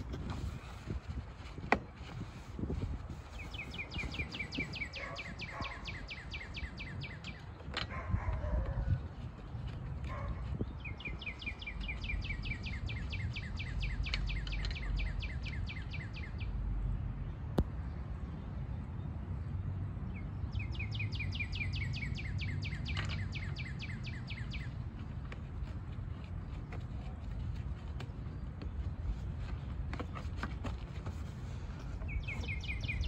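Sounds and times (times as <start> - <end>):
songbird trilling: 10.8 - 16.5, 32.0 - 33.0.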